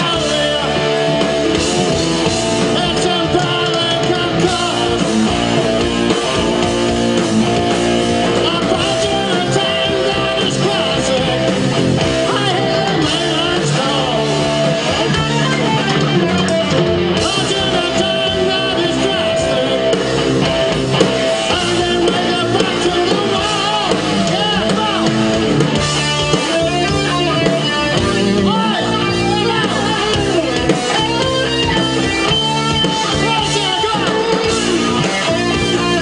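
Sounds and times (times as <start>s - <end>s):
person singing: 0.0s - 1.6s, 2.6s - 6.6s, 8.2s - 20.2s, 21.4s - 25.6s, 26.3s - 36.0s
bass guitar: 0.0s - 36.0s
distorted electric guitar: 0.0s - 36.0s
drums: 0.0s - 36.0s.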